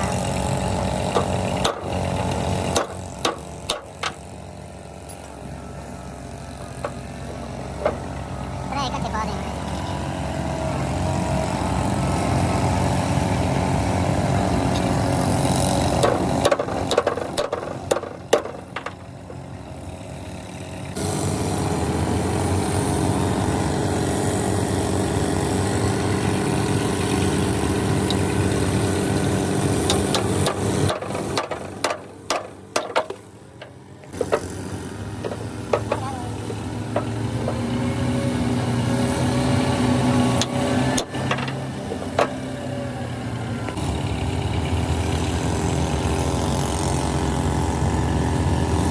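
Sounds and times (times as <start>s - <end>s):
engine idling: 0.0s - 48.9s
metallic knocks and clanks: 16.0s - 19.4s, 29.8s - 34.5s, 35.2s - 37.7s.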